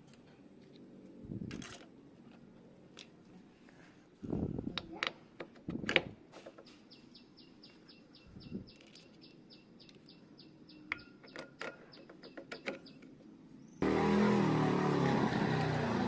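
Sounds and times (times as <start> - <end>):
clicks and knocks of handling: 10.9 - 13.3
motorcycle engine starting: 13.8 - 16.0.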